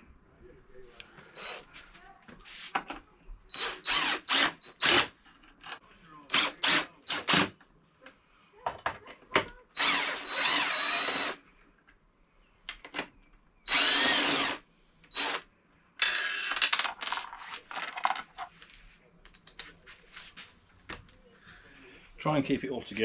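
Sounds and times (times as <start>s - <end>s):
power drill-driver spinning: 1.4s - 1.6s, 3.5s - 5.1s, 9.8s - 11.4s, 13.7s - 15.4s.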